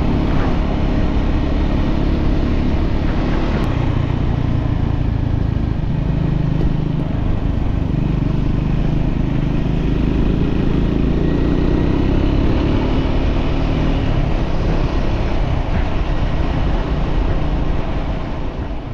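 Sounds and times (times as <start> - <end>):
road and wind noise: 0.0 - 18.9
vehicle engine running: 0.0 - 18.9.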